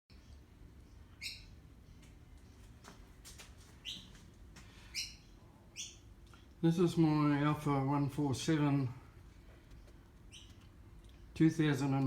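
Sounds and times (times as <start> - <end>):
bird chirping: 0.1 - 2.9, 3.8 - 4.2, 4.8 - 6.1, 9.7 - 11.4.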